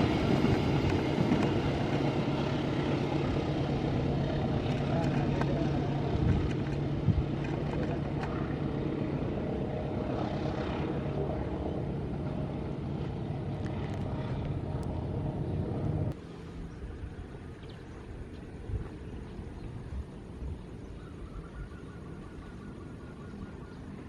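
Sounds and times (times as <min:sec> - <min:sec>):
diesel train engine droning: 0:00.0 - 0:10.0.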